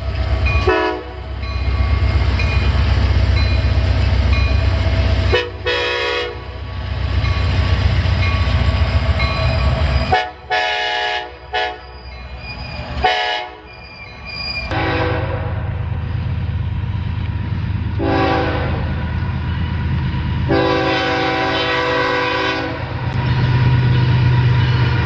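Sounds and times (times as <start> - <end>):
trains rumbling past: 0.0 - 25.0
train air horns: 0.6 - 1.2, 5.3 - 6.6, 10.1 - 11.9, 13.0 - 13.7, 14.7 - 15.7, 18.0 - 18.9, 20.5 - 22.9.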